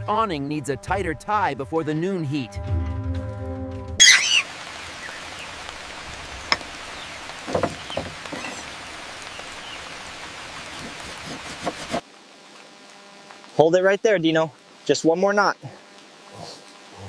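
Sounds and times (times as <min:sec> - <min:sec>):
steady rain falling: 0:04.0 - 0:17.0
small knocks: 0:07.4 - 0:08.6.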